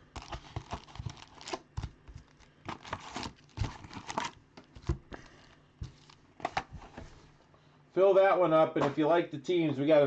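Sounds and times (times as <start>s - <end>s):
foil wrappers crinkling and tearing: 0.1s - 6.2s.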